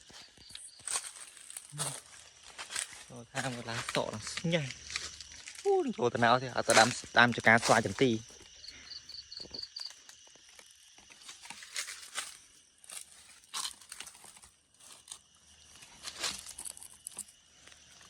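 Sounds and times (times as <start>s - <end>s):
high insect chirping: 0.0s - 18.0s
dry material crumpling and crunching: 15.9s - 17.3s.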